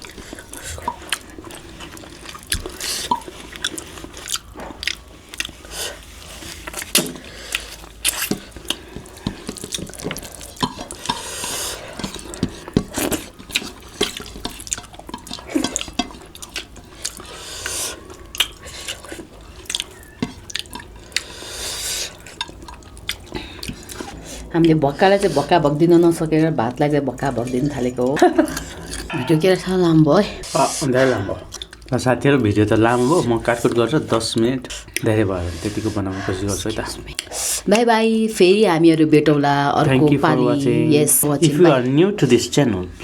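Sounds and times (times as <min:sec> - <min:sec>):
person chewing with mouth clicks: 0:00.0 - 0:25.7, 0:26.7 - 0:32.0, 0:32.8 - 0:35.8, 0:37.0 - 0:37.8.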